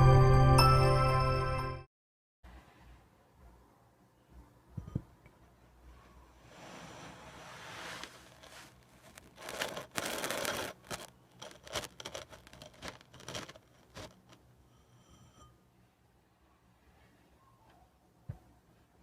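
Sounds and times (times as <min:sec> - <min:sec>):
sand being cut with scraping crunch: 0:07.7 - 0:14.2.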